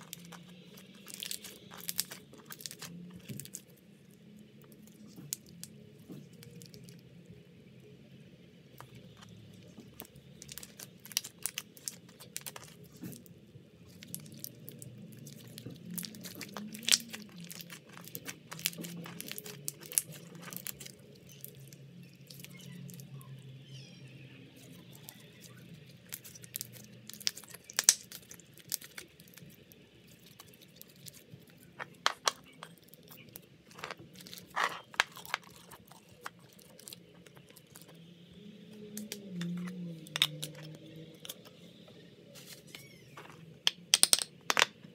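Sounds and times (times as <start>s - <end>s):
slime crackling and popping: 0.0s - 7.0s, 8.7s - 23.2s, 24.5s - 38.0s.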